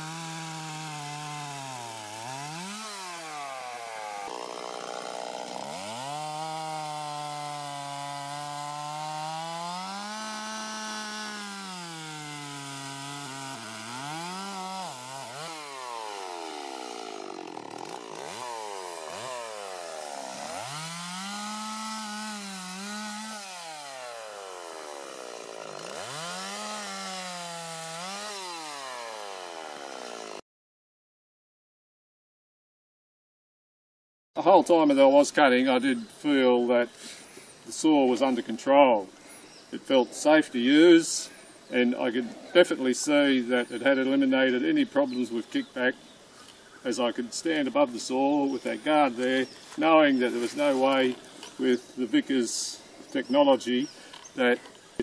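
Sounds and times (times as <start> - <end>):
chainsaw cutting wood: 0.0 - 30.4, 47.2 - 54.8.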